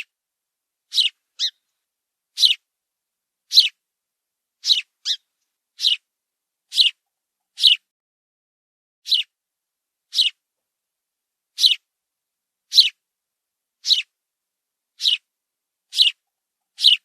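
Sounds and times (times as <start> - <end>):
cockatoo shrill calls: 0.9 - 1.6, 2.4 - 2.6, 3.5 - 3.8, 4.6 - 5.2, 5.8 - 6.0, 6.7 - 7.0, 7.6 - 7.8, 9.1 - 9.3, 10.1 - 10.4, 11.6 - 11.8, 12.7 - 13.0, 13.8 - 14.1, 15.0 - 15.2, 15.9 - 16.2, 16.8 - 17.0.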